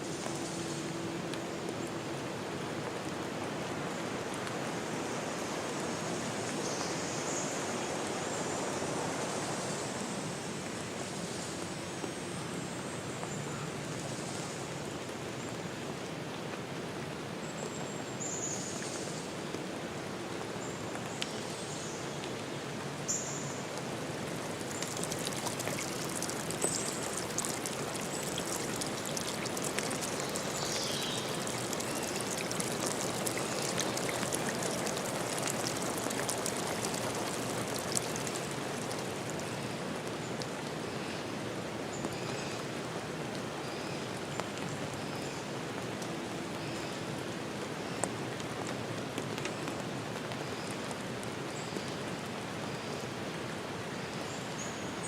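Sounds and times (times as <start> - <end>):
stream flowing over rocks: 21.7 - 53.9.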